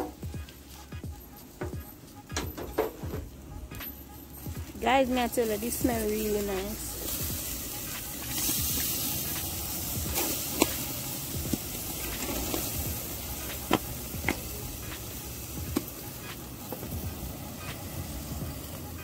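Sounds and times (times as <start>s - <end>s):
fat popping and crackling: 1.5s - 4.0s, 4.6s - 18.0s
chicken sizzling on grill: 4.5s - 19.0s.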